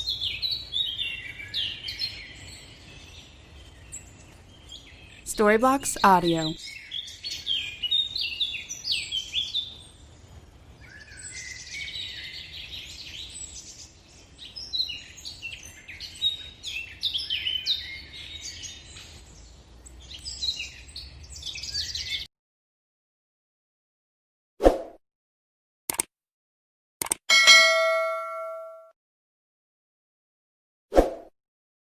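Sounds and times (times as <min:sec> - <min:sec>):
birds chirping: 0:00.9 - 0:07.0.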